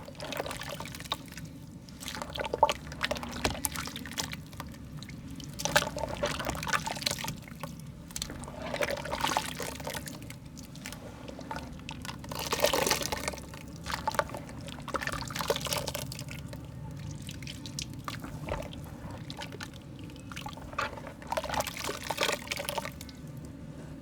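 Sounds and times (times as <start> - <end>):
dripping: 0.0 - 23.6
wet mud squelching: 17.1 - 23.2.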